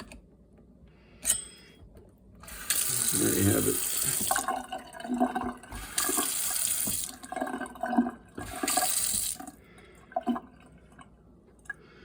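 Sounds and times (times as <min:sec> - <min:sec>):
faucet water running into sink: 0:02.4 - 0:09.6.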